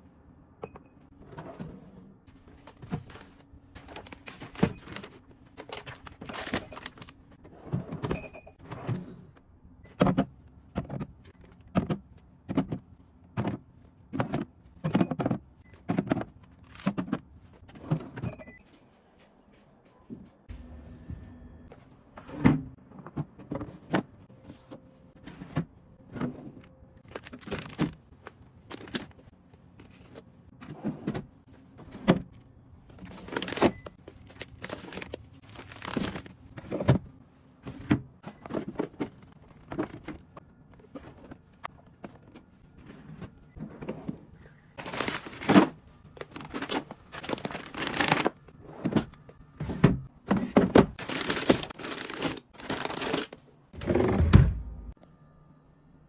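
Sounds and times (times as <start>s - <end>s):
plastic packaging rustling: 2.7s - 7.2s, 27.0s - 28.1s, 33.0s - 36.4s, 44.8s - 48.4s, 50.9s - 53.4s.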